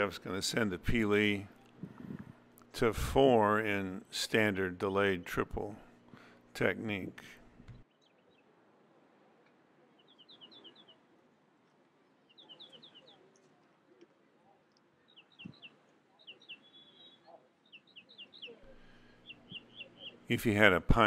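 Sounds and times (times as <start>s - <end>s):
faint bird chirps: 7.8s - 8.6s, 9.4s - 11.3s, 12.0s - 20.4s.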